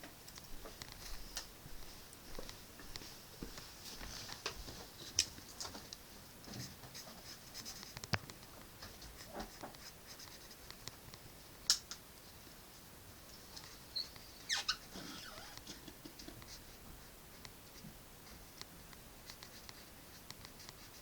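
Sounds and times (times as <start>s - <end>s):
drawing tool scratching paper: 19.2s - 21.0s.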